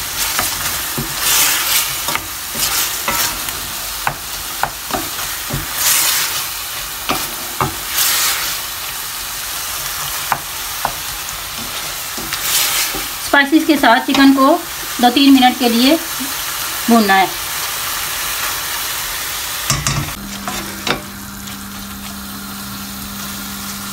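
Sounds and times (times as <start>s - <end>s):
chicken sizzling in oil: 0.0s - 23.9s
spatula scraping metal pot: 0.2s - 3.7s.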